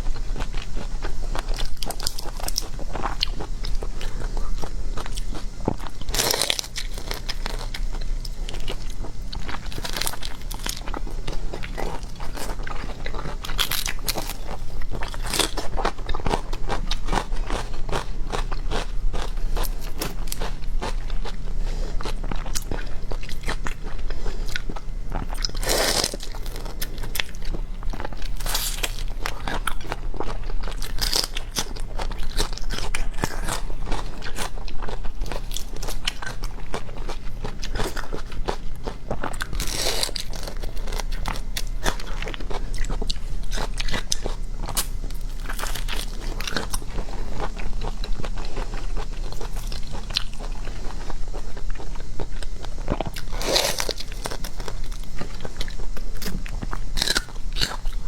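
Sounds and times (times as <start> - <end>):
crunching and chewing food: 0.0 - 58.0
low steady hum: 0.0 - 58.0.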